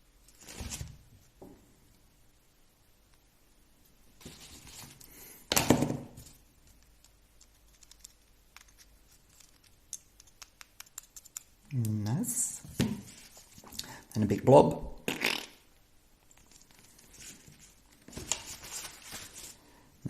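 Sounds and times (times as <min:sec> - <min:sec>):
soft rustling hiss of handling: 0:03.1 - 0:05.5, 0:06.1 - 0:14.4, 0:16.2 - 0:20.0
small parts clicking and tapping: 0:06.6 - 0:12.1.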